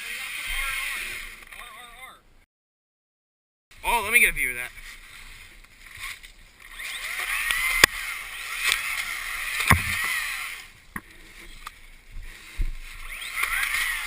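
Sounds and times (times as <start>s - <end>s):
dirt bike engine revving: 6.0s - 10.8s, 12.2s - 14.0s
sharp knocks: 9.6s - 10.1s.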